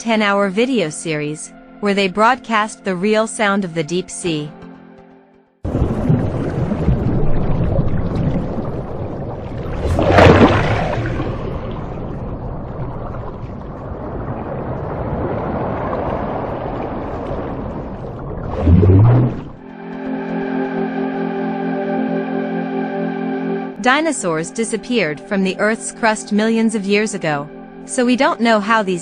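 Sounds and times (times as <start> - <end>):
rushing underwater noise: 5.6 - 19.8.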